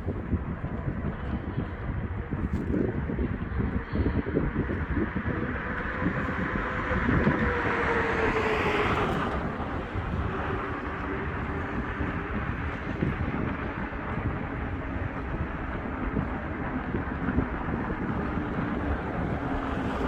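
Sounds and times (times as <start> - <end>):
wind on microphone: 0.0 - 20.0
vehicle passing by: 5.8 - 13.2.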